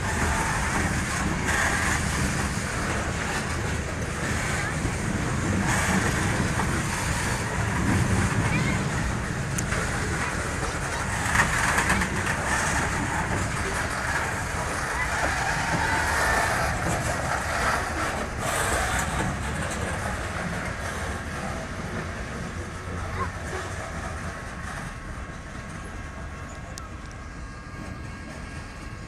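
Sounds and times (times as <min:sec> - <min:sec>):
train rolling past: 0:00.0 - 0:29.0.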